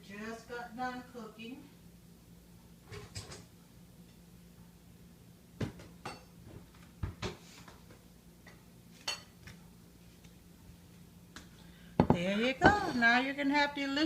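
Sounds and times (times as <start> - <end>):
dishes and utensil clinking: 5.8 - 6.4, 9.0 - 9.4.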